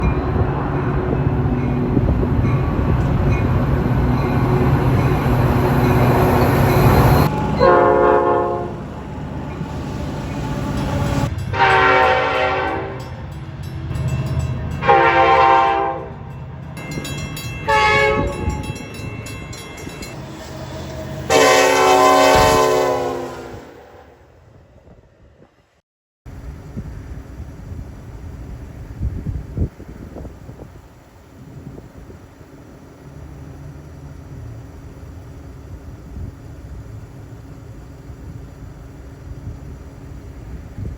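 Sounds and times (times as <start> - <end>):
train rumbling: 0.0 - 40.9
train horn blasts: 6.8 - 8.9, 11.5 - 13.2, 14.8 - 16.4, 17.7 - 18.7, 21.1 - 24.2.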